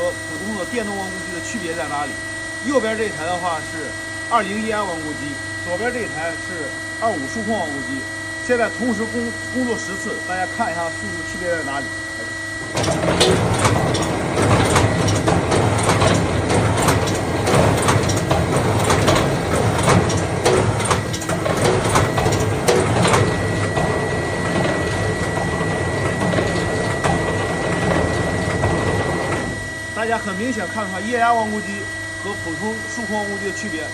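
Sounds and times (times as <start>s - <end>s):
machine hum: 0.0s - 33.9s
sharp metallic clanks and clicks: 12.7s - 23.9s.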